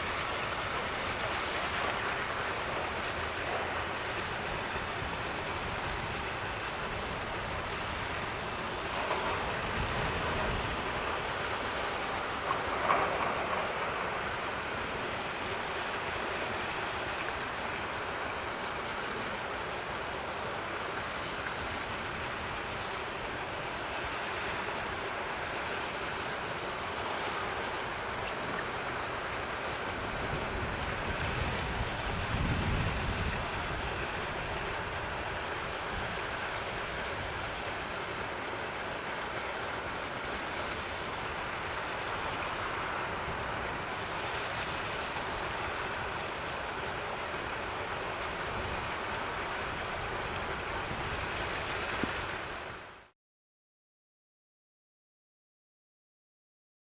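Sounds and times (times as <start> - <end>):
rushing outdoor background noise: 0.0 - 53.1
wind buffeting microphone: 4.0 - 11.6, 29.8 - 37.5.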